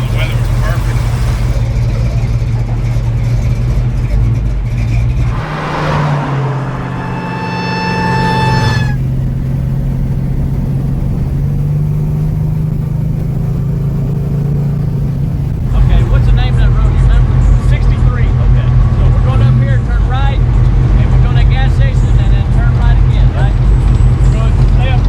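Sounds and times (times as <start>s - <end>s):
car engine rumbling: 0.0s - 25.0s
high steady whine: 5.1s - 9.1s.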